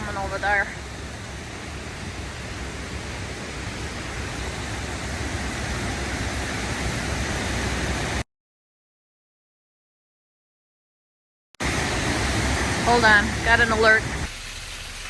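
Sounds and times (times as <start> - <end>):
waterfall rushing: 0.0 - 8.2, 11.6 - 15.0.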